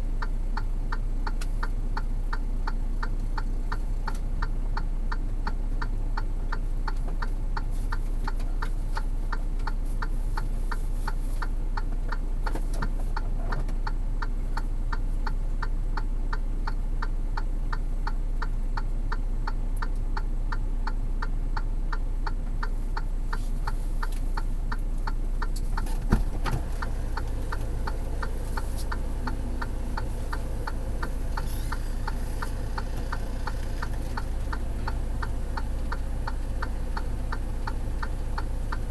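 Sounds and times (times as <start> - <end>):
low hum: 24.5 - 38.9.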